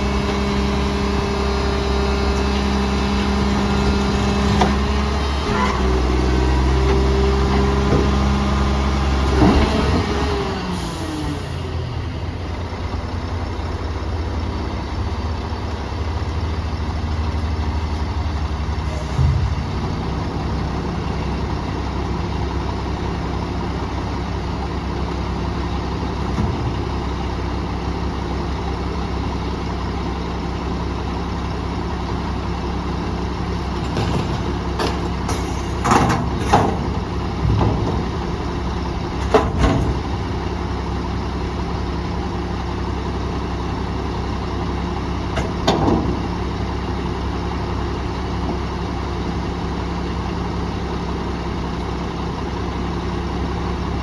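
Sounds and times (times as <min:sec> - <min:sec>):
garbage truck engine idling: 0:00.0 - 0:54.0
loud bangs and clatter: 0:18.9 - 0:22.6.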